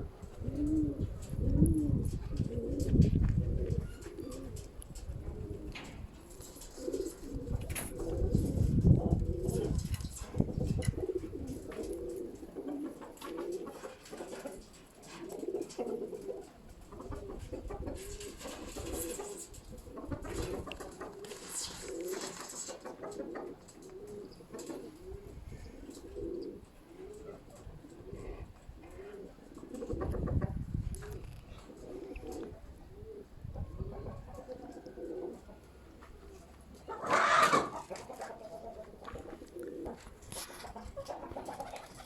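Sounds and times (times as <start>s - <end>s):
wind rumbling on microphone: 0.0s - 6.2s, 6.9s - 12.0s, 25.1s - 26.3s, 29.8s - 34.5s
pigeons cooing: 0.0s - 42.0s.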